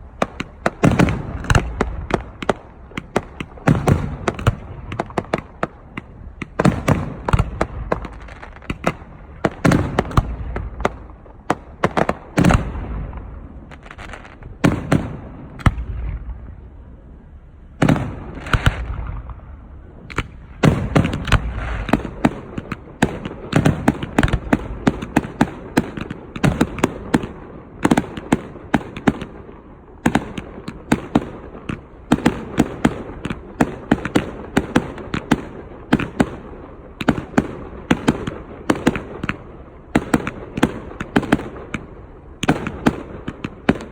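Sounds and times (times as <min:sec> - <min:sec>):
crackling firework reports: 0:00.0 - 0:43.9
firework shell booms: 0:17.8 - 0:29.4.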